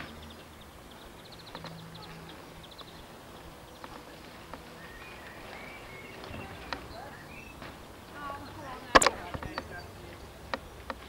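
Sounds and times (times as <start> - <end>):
birds singing: 0.0 - 11.0
sharp clicks: 8.9 - 9.7.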